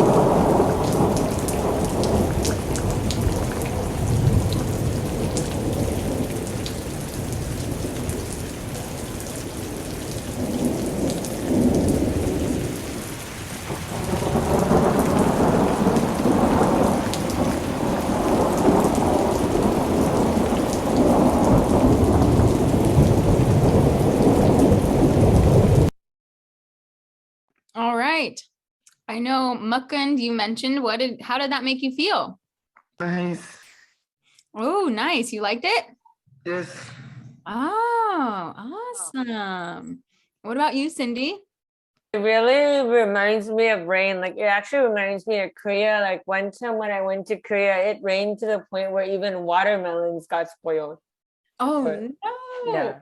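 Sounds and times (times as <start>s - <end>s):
heavy rain: 0.0s - 25.9s
low rolling thunder: 0.0s - 25.9s.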